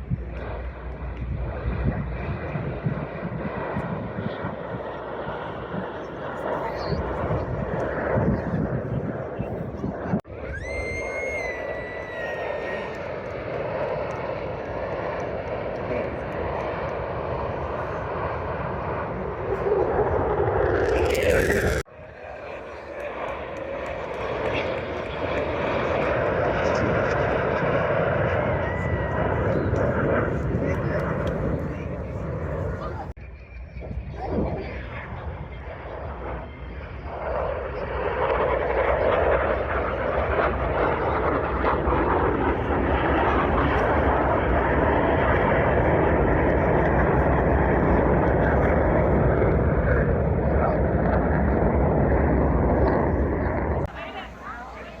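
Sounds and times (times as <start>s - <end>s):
airplane engine overhead: 0.0s - 55.0s
high engine whine: 12.8s - 33.1s.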